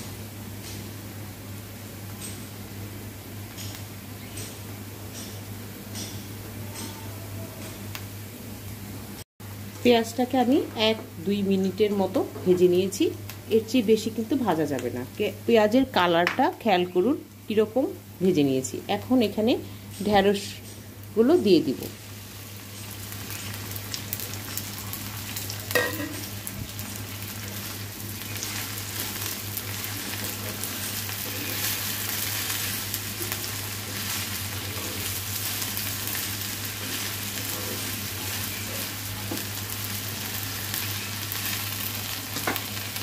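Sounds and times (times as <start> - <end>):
okra sizzling in hot oil: 9.8 - 43.0
spatula stirring food: 27.5 - 41.6.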